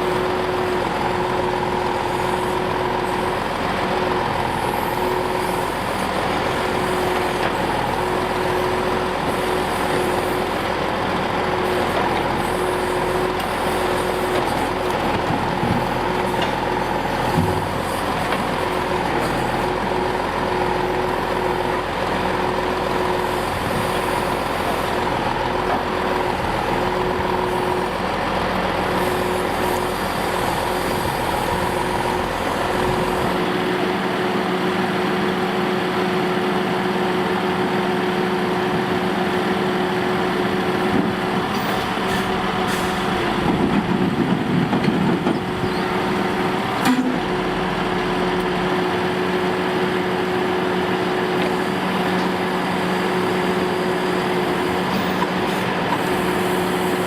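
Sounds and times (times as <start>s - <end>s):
diesel truck engine running: 0.0s - 57.0s
hydraulic whine: 40.6s - 49.6s.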